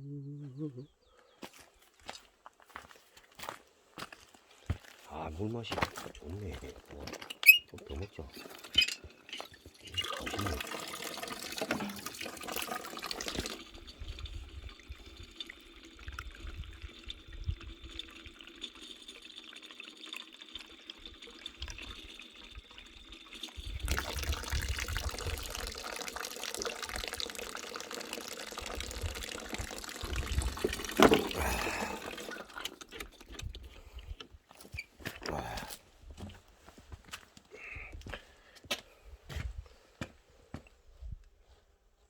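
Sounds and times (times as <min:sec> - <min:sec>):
running water splashing: 0:07.9 - 0:33.1.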